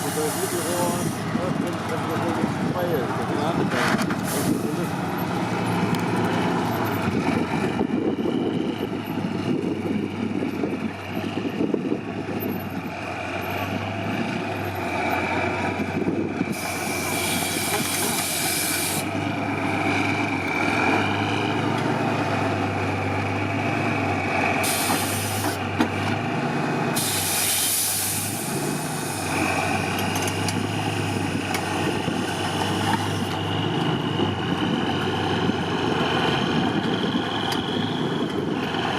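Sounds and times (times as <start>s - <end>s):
air brake release hiss: 0.0s - 1.2s, 16.6s - 19.1s, 24.6s - 25.6s, 27.0s - 29.2s
diesel truck engine running: 0.0s - 38.9s.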